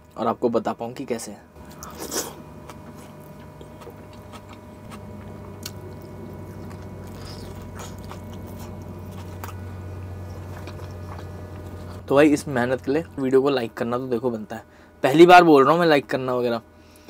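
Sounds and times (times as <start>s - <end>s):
steady low hum: 0.0s - 17.0s
person chewing food: 1.6s - 12.1s.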